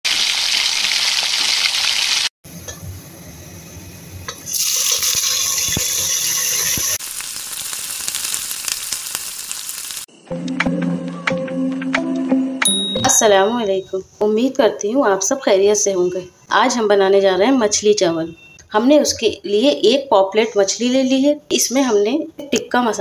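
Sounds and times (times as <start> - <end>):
food sizzling in hot oil: 0.1 - 10.1.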